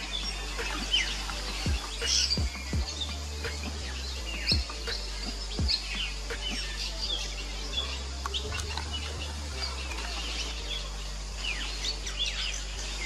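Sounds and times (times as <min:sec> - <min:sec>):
birds twittering: 0:00.0 - 0:13.0
low steady hum: 0:00.0 - 0:13.0.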